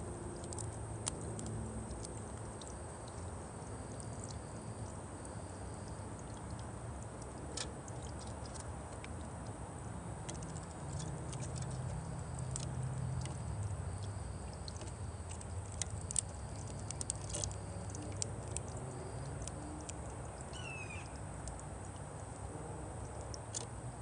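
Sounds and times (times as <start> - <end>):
low steady rumble: 0.0 - 24.0
descending bird call: 20.5 - 21.2.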